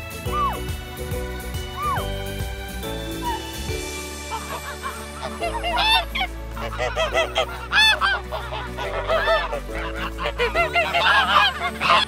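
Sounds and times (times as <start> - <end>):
ducks quacking: 4.2 - 12.0.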